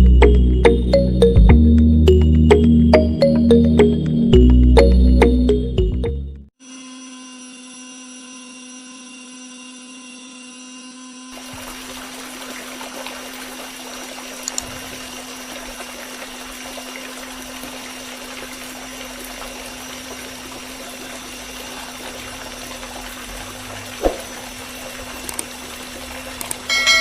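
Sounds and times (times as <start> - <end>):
water pump humming: 11.3 - 27.0
water trickling and pouring: 11.4 - 27.0
small clicks: 14.4 - 14.7, 25.2 - 25.5, 26.4 - 26.7.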